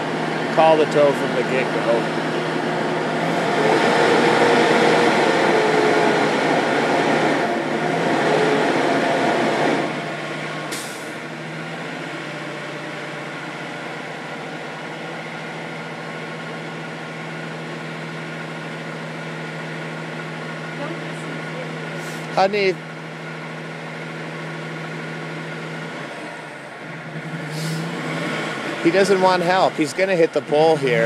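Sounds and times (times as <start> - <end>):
truck engine working: 0.0 - 31.0
tires spinning in snow: 1.6 - 14.6, 24.9 - 31.0.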